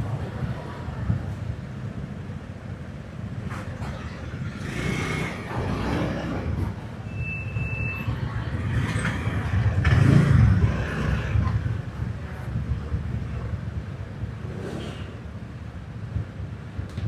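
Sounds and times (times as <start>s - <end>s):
motorbike engine and road rumble: 0.0s - 17.0s.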